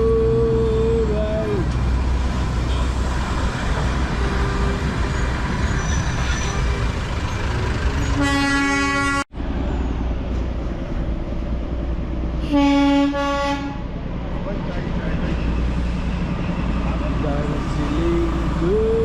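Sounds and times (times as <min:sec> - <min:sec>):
train horn blast: 0:08.0 - 0:09.3, 0:12.4 - 0:13.8.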